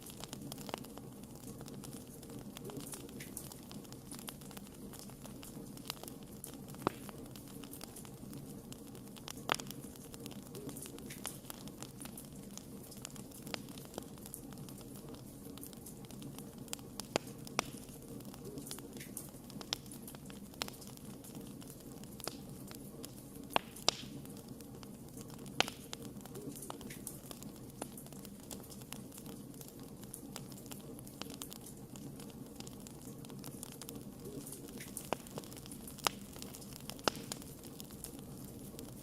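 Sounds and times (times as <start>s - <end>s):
wood fire burning: 0.0s - 39.0s.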